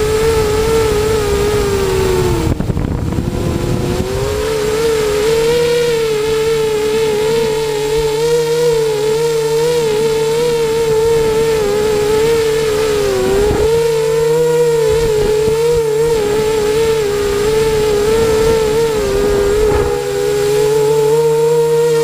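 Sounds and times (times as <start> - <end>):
wind buffeting rumble: 0.0 - 8.2, 8.8 - 21.4
quadcopter motors whining: 0.0 - 22.0.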